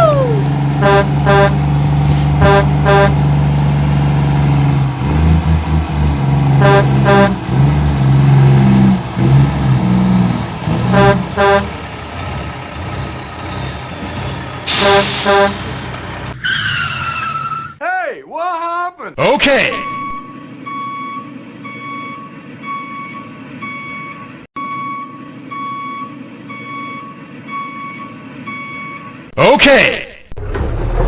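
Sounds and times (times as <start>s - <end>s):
truck engine rumbling: 0.0s - 17.8s, 19.2s - 29.4s, 30.2s - 31.0s
horn double toot: 0.8s - 1.6s, 2.4s - 3.2s, 6.6s - 7.4s, 10.9s - 11.8s, 14.7s - 15.7s.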